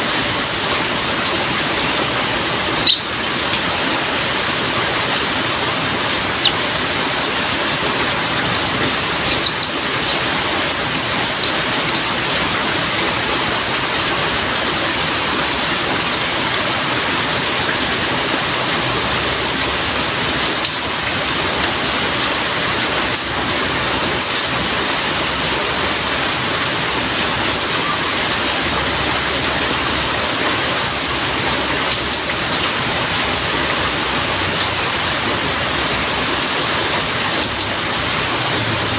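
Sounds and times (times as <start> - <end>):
heavy rain falling: 0.0 - 38.9
sharp high chirps: 2.8 - 3.3, 6.1 - 7.2, 7.8 - 10.5.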